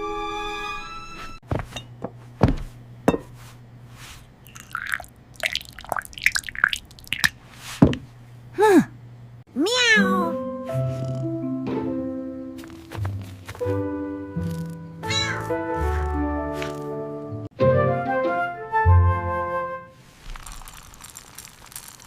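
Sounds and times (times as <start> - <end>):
cartoon cat meowing: 9.6 - 10.4, 15.0 - 15.6.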